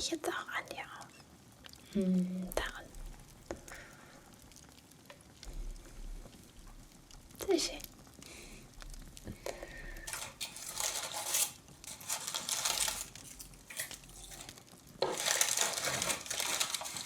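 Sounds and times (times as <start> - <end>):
decorations rustling and clinking: 10.0 - 17.0.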